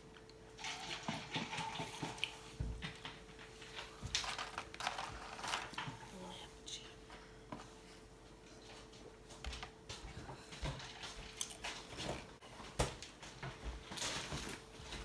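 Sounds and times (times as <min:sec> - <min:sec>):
food crunching: 0:10.6 - 0:12.2.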